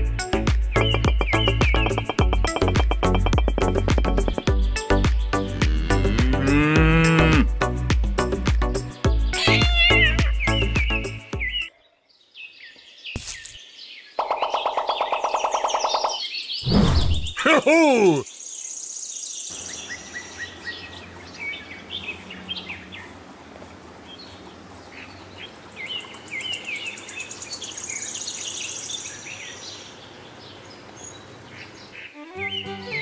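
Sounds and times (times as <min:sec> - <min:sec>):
birds chirping: 0:00.0 - 0:07.4, 0:08.3 - 0:33.0
steady background hiss: 0:18.2 - 0:32.4.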